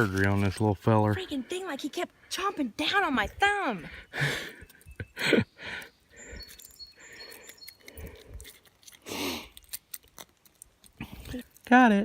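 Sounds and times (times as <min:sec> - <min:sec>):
faint bird chirps: 0:03.9 - 0:08.2.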